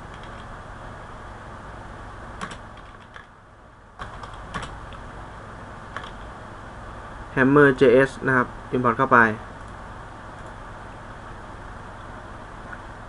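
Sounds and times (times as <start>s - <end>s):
computer keyboard keystrokes: 0.0s - 0.5s, 2.4s - 3.3s, 4.0s - 4.8s, 5.9s - 6.3s
steady background hiss: 0.0s - 13.0s.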